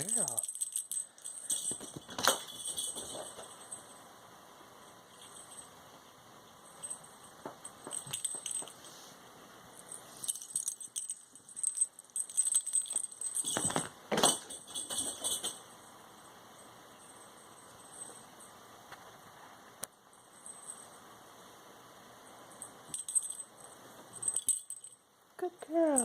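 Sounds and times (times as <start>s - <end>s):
small bell jingling: 0.0s - 4.0s, 5.0s - 6.0s, 6.6s - 9.0s, 9.8s - 15.8s, 22.5s - 25.0s.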